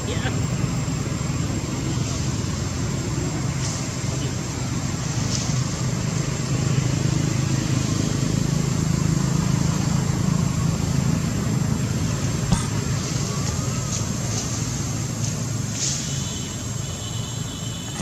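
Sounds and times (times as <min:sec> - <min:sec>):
vehicle engine running: 0:00.0 - 0:16.9.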